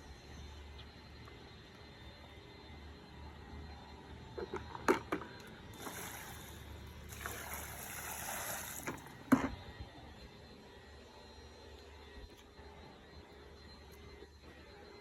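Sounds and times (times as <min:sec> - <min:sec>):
water pouring: 0:05.8 - 0:09.2.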